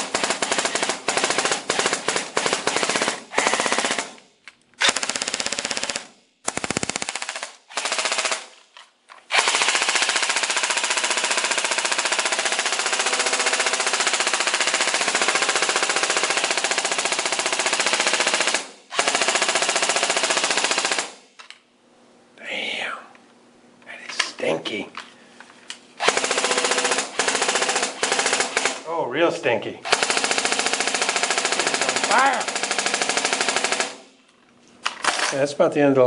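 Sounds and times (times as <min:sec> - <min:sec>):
airsoft gun firing bursts: 0:00.0 - 0:04.2, 0:04.8 - 0:08.5, 0:09.3 - 0:21.2, 0:26.0 - 0:28.8, 0:29.9 - 0:34.1.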